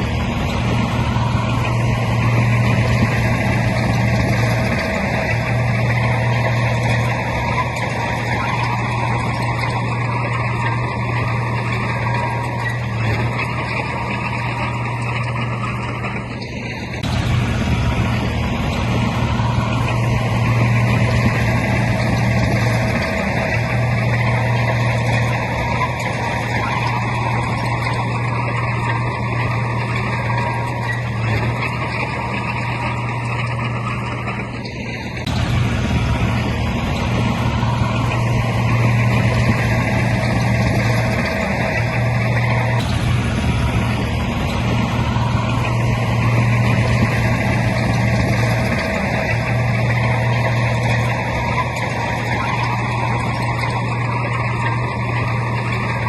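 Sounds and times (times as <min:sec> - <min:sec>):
heavy diesel machinery droning: 0:00.0 - 0:56.0.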